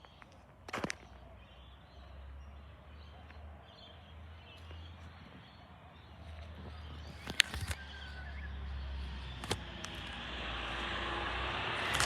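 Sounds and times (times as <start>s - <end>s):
truck engine rumble: 6.4s - 12.0s.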